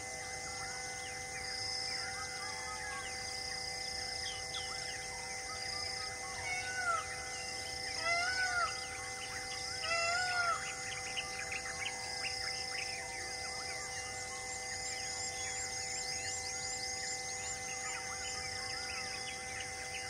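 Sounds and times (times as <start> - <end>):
birds chirping: 6.5 - 13.0.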